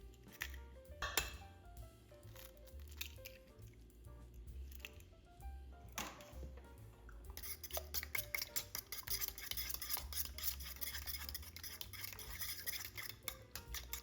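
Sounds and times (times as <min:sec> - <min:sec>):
utensil beating against mixing bowl: 0:07.3 - 0:14.0.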